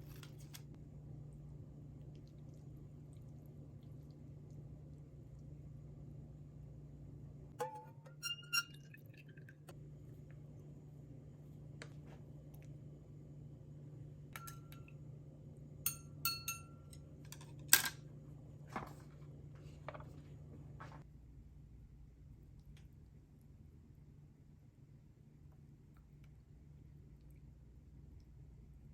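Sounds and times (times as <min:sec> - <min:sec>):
low steady hum: 0:00.0 - 0:28.9
tableware clinking: 0:14.4 - 0:14.9, 0:15.9 - 0:17.9.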